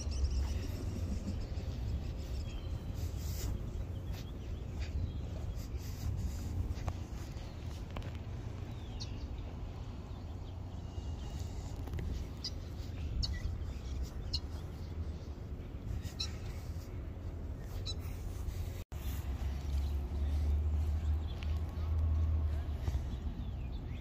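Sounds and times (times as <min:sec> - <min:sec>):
steady low rumble: 0:00.0 - 0:24.0
high bird chirps: 0:15.9 - 0:16.7.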